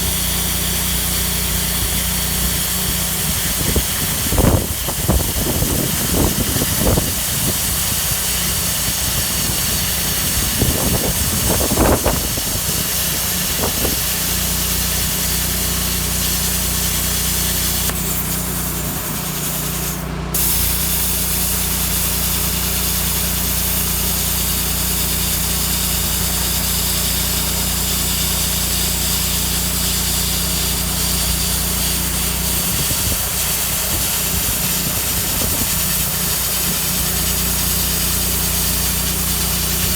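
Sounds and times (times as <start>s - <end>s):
generator engine running: 0.0s - 39.9s
plasma cutter hissing: 0.0s - 39.9s.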